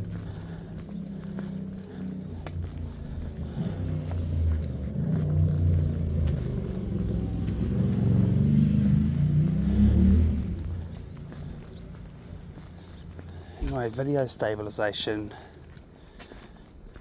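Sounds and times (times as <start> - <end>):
vehicle driving past: 0.0 - 13.2.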